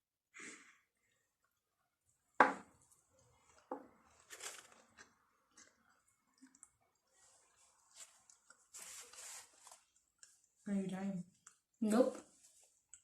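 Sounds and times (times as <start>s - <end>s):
wet chewing and smacking: 4.6s - 8.7s, 9.7s - 10.6s, 11.3s - 13.0s.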